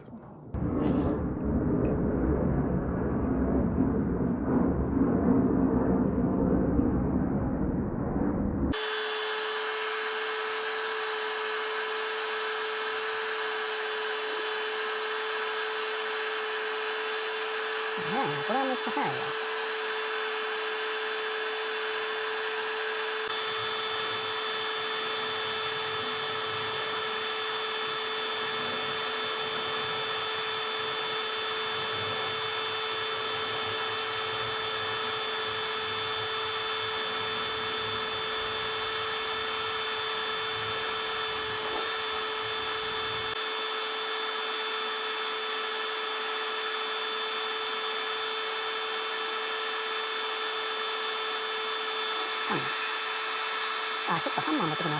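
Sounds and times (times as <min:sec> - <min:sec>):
low rumble: 0:00.0 - 0:08.8
small electric motor whining: 0:08.7 - 0:54.9.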